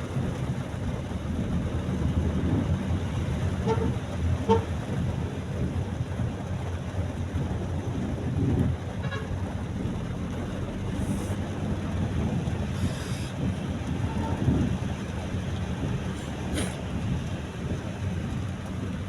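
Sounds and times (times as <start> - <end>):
road and engine rumble: 0.0 - 19.0
brief hisses: 16.5 - 16.8.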